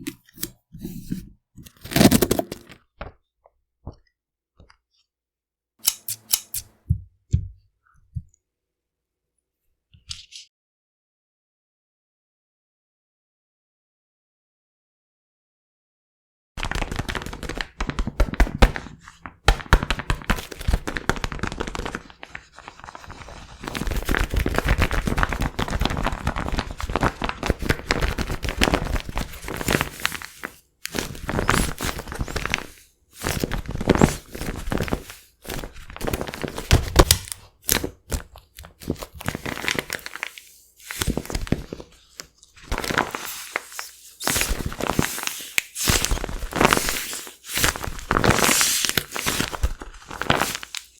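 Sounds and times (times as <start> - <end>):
paper squishy crinkling: 0.0 - 3.1, 18.5 - 50.9.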